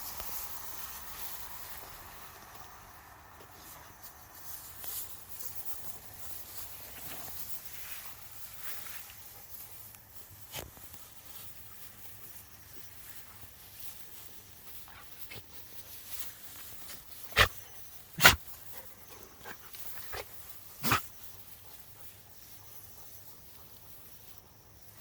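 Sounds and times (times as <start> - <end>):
dog barking: 18.2 - 18.4, 20.8 - 21.0.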